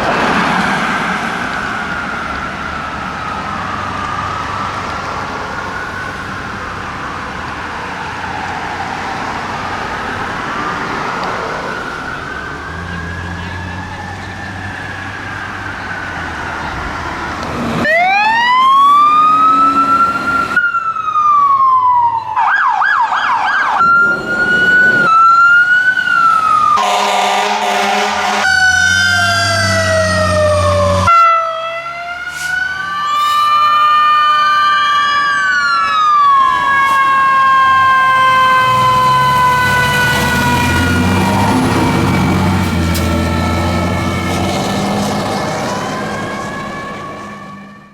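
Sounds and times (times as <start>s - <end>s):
distant sirens wailing: 0.0s - 47.9s
engine and road noise: 0.0s - 47.9s
loud fire truck siren: 0.0s - 47.9s
fire truck air horns: 26.7s - 35.3s, 36.0s - 44.4s
truck air horn blast: 26.8s - 28.9s.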